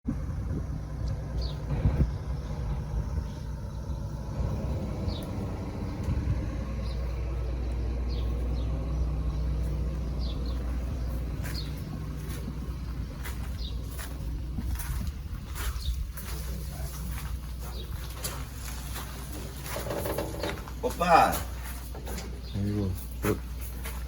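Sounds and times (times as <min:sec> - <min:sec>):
low engine rumble: 0:00.0 - 0:24.0
high bird chirps: 0:01.0 - 0:16.5.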